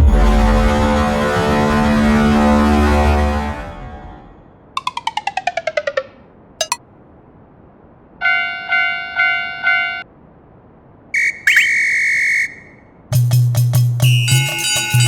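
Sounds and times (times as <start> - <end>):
whistle blast: 11.2 - 12.8, 14.0 - 15.0
percussive music: 13.2 - 15.0
bell-like dings: 14.3 - 15.0.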